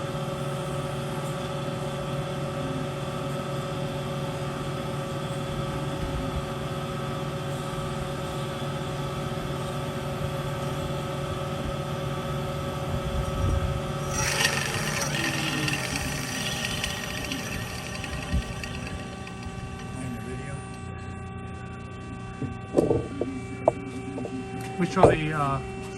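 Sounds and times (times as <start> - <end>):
band saw sawing: 14.0 - 20.3
rasping burst: 14.0 - 20.3.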